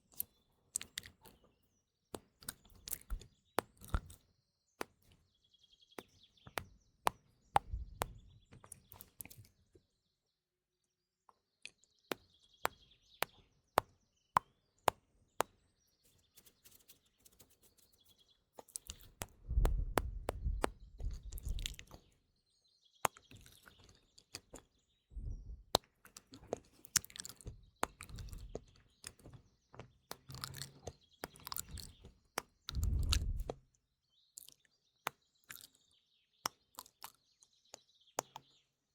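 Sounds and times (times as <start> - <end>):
faint birdsong chirps: 0.0 - 38.9
wet mouth clicks and pops: 2.4 - 4.2, 18.6 - 22.0, 25.7 - 28.6, 30.1 - 33.6.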